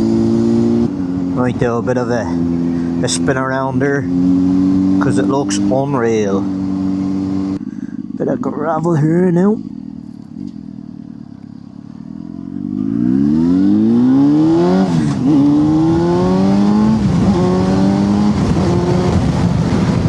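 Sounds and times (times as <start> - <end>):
motorcycle engine accelerating: 0.0 - 20.0
wind rushing over microphone: 12.6 - 20.0.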